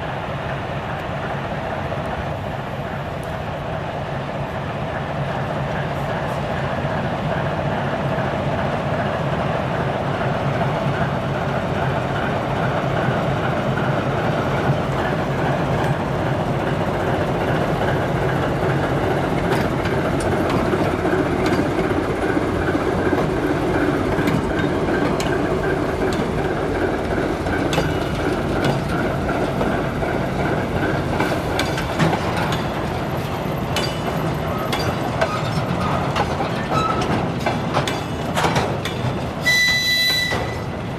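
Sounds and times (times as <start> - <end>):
freight train rumbling past: 0.0 - 40.9
wheels clicking over rail joints: 12.2 - 40.9.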